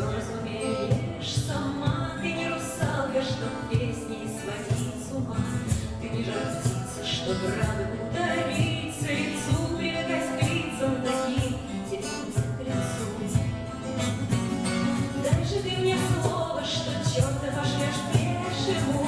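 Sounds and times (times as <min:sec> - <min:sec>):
person singing: 0:15.0 - 0:19.0.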